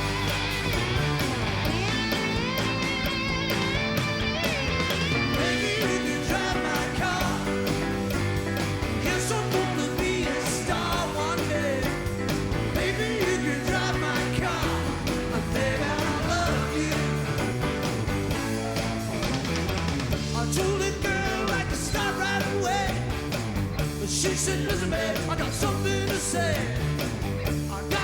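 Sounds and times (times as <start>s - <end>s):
live rock band playing: 0.0s - 28.0s.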